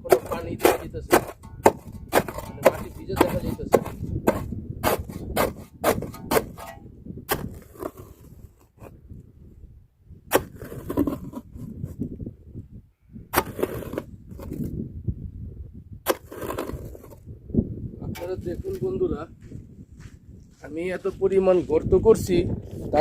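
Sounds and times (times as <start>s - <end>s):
shovel striking wet sandy ground: 0.0s - 8.9s, 10.3s - 11.4s, 13.3s - 14.7s, 16.1s - 17.2s, 18.2s - 18.8s.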